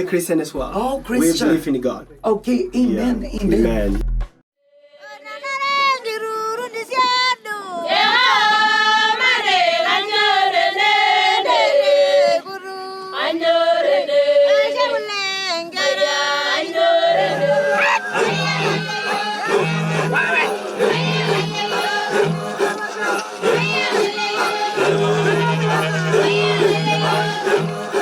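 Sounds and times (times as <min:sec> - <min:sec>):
low bass notes: 0:00.6 - 0:04.4
high voice singing: 0:17.1 - 0:28.0.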